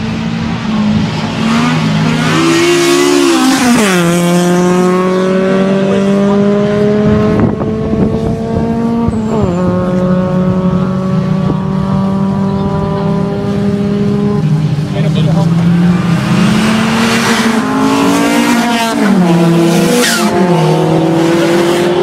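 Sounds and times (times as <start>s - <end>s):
car engine revving high: 0.1s - 22.0s.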